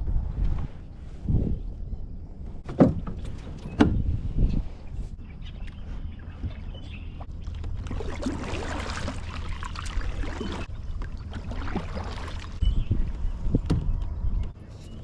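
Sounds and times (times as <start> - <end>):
water splashing and trickling: 6.4 - 14.1.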